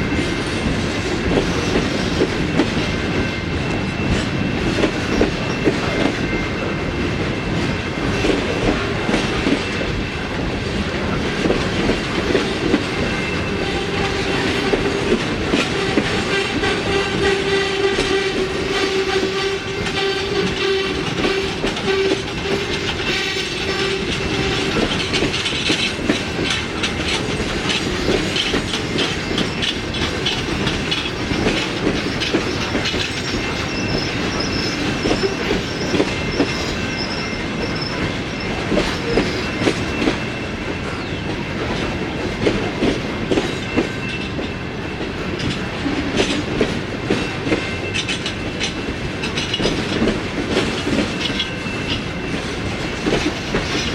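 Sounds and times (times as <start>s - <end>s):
train wheels clicking on rail joints: 0.0s - 53.9s
train horn: 12.6s - 25.4s
high wheel squeal: 27.8s - 41.2s.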